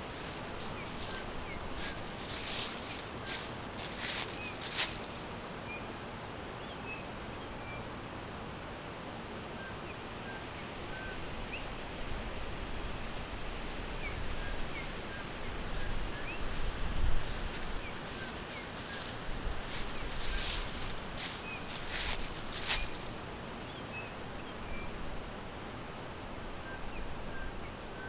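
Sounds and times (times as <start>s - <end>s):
sharp crackle: 0.0s - 5.4s, 17.3s - 23.4s
small birds chirping: 0.0s - 5.7s, 14.0s - 24.1s
steady background hiss: 0.0s - 28.0s.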